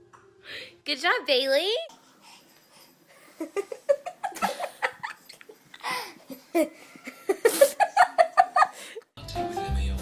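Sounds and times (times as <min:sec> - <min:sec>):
person giggling: 0:03.2 - 0:09.0.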